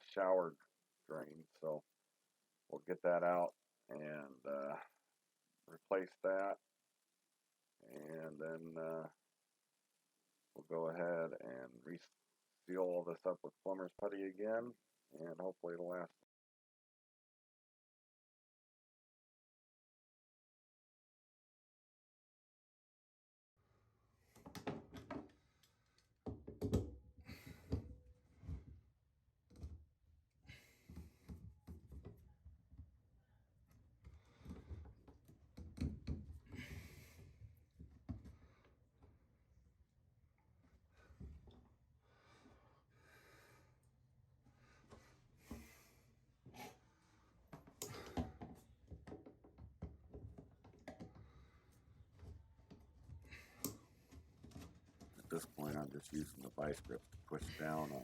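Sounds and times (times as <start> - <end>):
faint breaths: 36.5 - 37.5, 40.9 - 48.4, 51.2 - 52.0.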